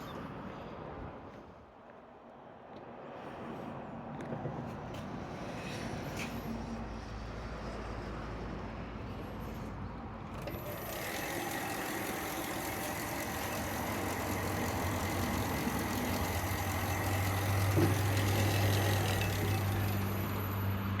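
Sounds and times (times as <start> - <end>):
band saw running with whine: 10.4 - 21.0.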